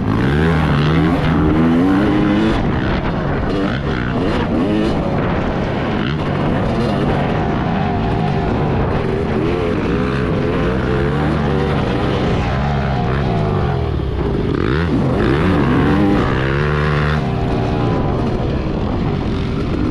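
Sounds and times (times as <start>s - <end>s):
two-stroke motocross engine revving: 0.0s - 19.9s.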